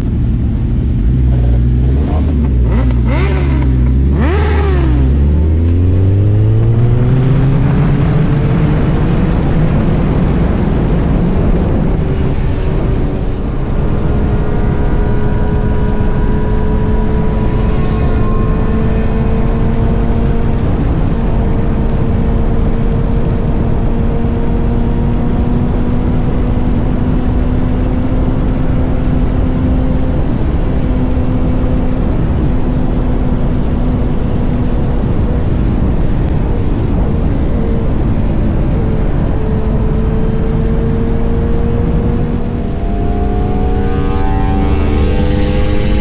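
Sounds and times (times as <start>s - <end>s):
motorcycle engine cruising: 0.0s - 46.0s.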